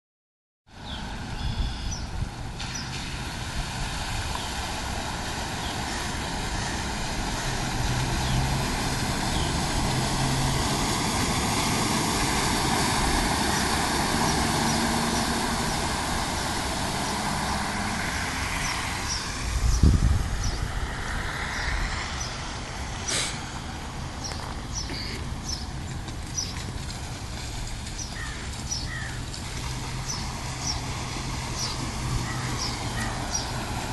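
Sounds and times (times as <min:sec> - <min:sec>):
floodwater rushing: 0:02.1 - 0:33.9
vehicle engine passing: 0:02.5 - 0:33.9
small birds chirping: 0:24.2 - 0:26.6, 0:31.6 - 0:33.6.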